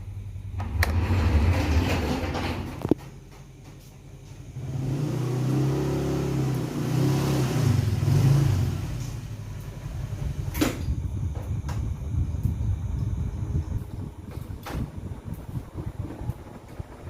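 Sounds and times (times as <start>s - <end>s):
fan motor hum: 0.0s - 17.0s
fluttering rumble of moving air: 8.8s - 17.0s.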